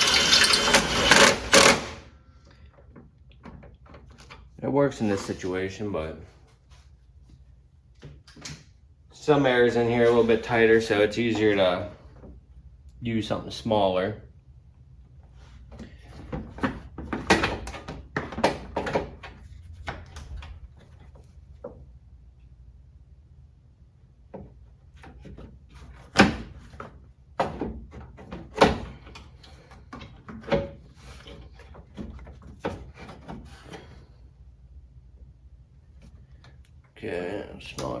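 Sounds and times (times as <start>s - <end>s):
hand tools and bolts clanking: 0.0s - 2.0s.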